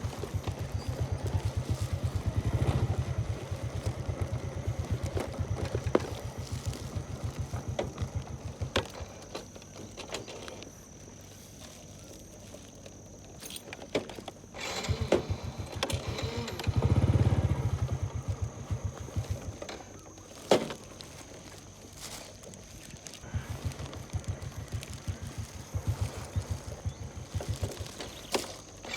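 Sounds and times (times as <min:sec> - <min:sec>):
small engine chugging past: 0:00.0 - 0:09.3, 0:14.6 - 0:20.4, 0:22.8 - 0:28.9.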